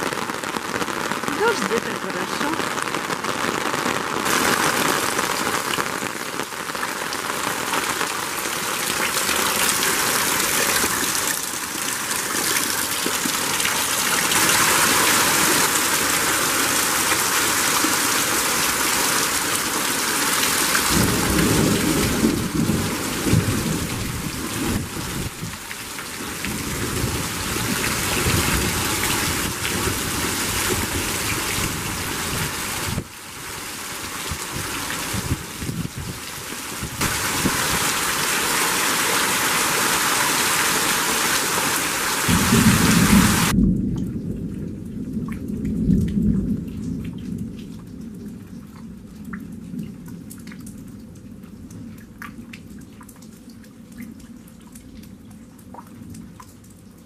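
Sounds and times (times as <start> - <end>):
heavy rain on ground and leaves: 0.0 - 57.0
thunder rumbling: 20.8 - 25.6, 42.3 - 47.7.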